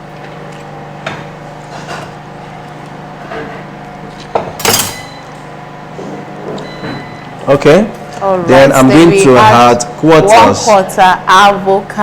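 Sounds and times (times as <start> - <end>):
steady low hum: 0.0 - 12.0
dishes and utensils clinking: 4.4 - 5.4.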